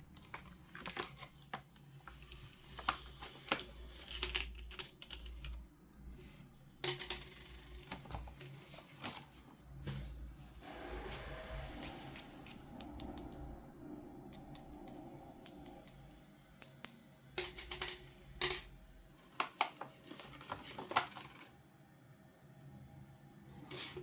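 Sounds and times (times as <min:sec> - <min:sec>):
plastic and cardboard rustling: 0:00.0 - 0:05.6, 0:07.8 - 0:10.5, 0:19.2 - 0:21.6
sharp clicks and taps: 0:11.8 - 0:13.4, 0:14.3 - 0:17.0.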